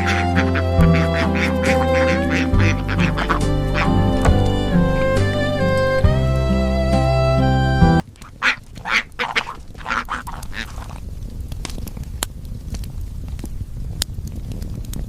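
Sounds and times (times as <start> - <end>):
duck quacking: 0.0 - 5.7, 8.0 - 11.0
background music: 0.0 - 8.0.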